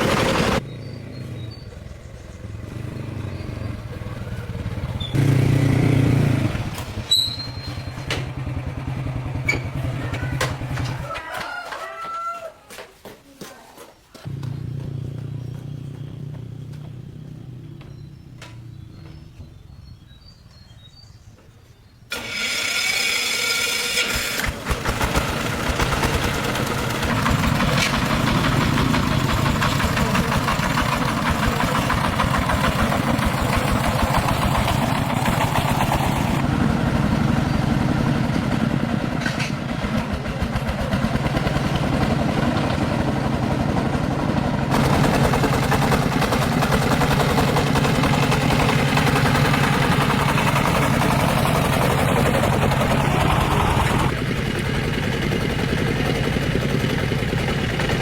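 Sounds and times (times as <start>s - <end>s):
engine starting and running: 0.0s - 11.1s, 22.1s - 58.0s.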